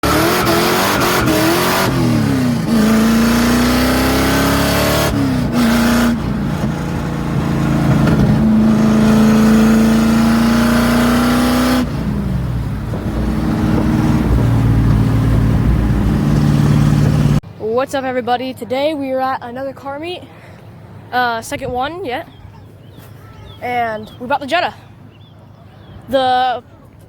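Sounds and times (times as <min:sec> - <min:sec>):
car engine accelerating: 0:00.0 - 0:17.4.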